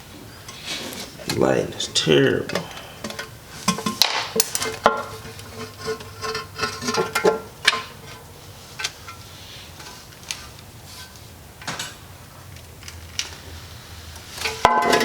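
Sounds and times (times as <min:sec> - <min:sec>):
tools and metal parts clinking: 0:02.5 - 0:08.2, 0:14.4 - 0:15.0.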